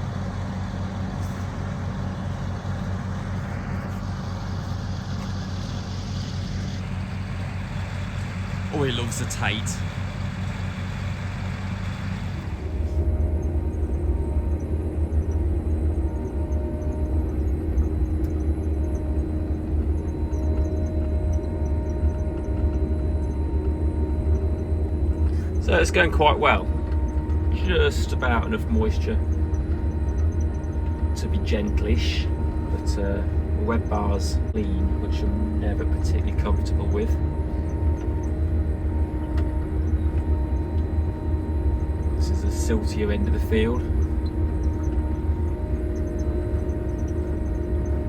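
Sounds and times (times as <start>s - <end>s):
even mechanical noise: 0.0s - 48.0s
low engine hum: 0.0s - 48.0s.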